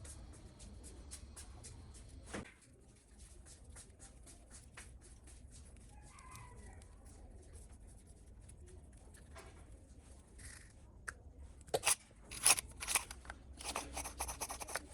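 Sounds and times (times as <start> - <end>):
distant rooster crow: 5.9 - 7.2.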